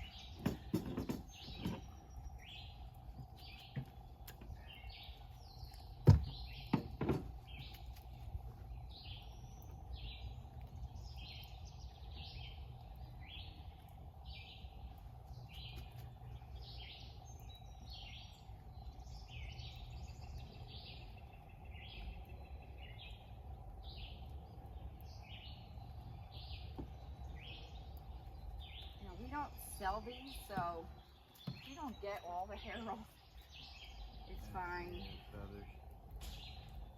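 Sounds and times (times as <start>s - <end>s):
bird chirping: 0.0s - 36.9s
sharp knocks: 0.3s - 1.8s, 6.0s - 7.4s.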